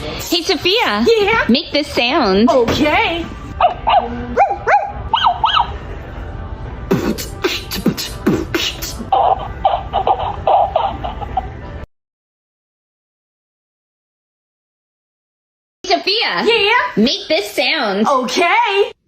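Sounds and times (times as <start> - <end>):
rhythmic vocal pulses: 6.8 - 10.4
beatbox percussive pops: 6.9 - 9.0
beatbox vocal whoops: 6.9 - 9.1.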